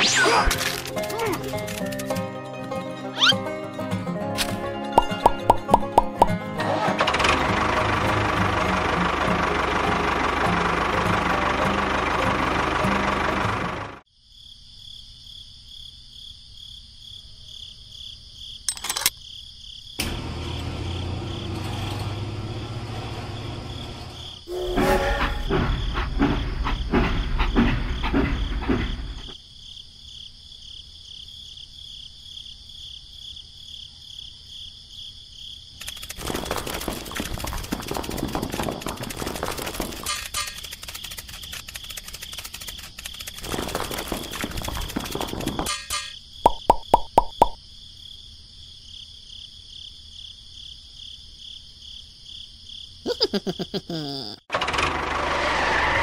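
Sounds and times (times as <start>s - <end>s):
crickets chirping: 14.1s - 20.0s, 23.1s - 54.4s
dense rattling clatter: 35.8s - 46.2s
toy train rumbling and clacking: 35.8s - 46.2s.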